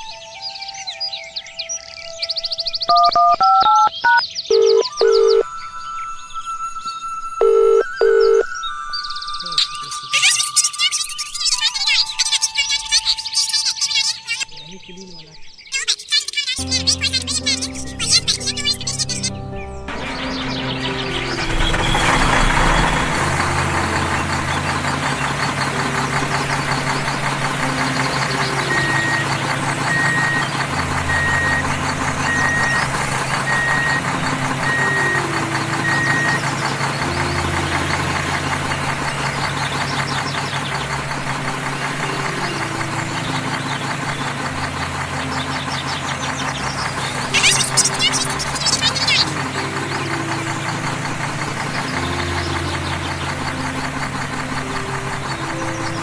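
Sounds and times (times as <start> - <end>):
short high beeps: 2.9 - 5.4, 7.4 - 8.5
tractor engine knocking: 19.9 - 56.0.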